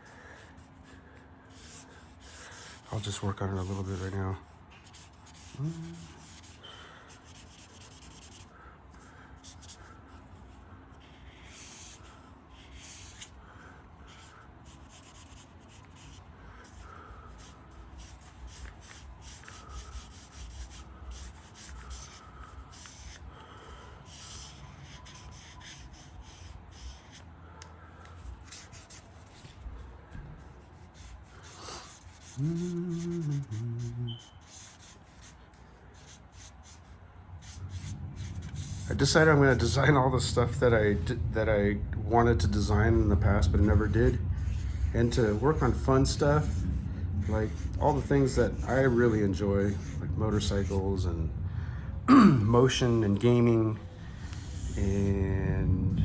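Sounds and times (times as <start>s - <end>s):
marker scratching on paper: 0.4s - 0.9s, 1.5s - 8.5s, 9.4s - 13.4s, 14.0s - 27.3s, 28.1s - 39.9s, 42.7s - 50.9s, 54.2s - 55.1s
person humming: 5.5s - 6.2s, 32.4s - 34.2s.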